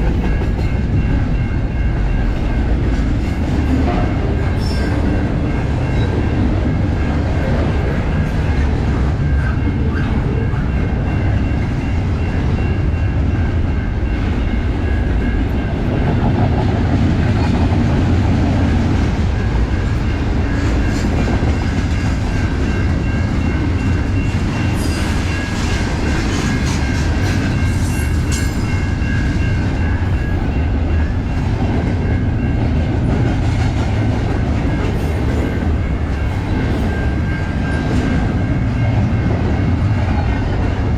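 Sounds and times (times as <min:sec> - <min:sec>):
wheels clickety-clack: 0:00.0 - 0:01.4
train wheels rumbling on rail: 0:00.0 - 0:40.9.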